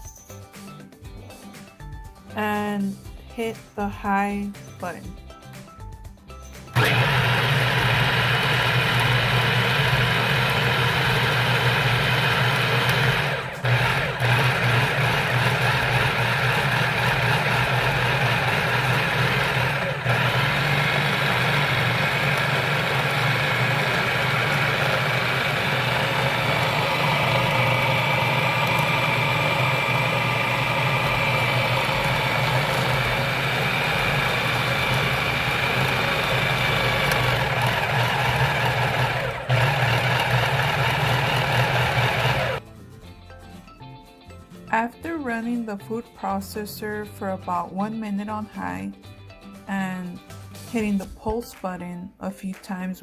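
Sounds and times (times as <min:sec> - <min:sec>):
food processor grinding: 0:06.7 - 0:42.6.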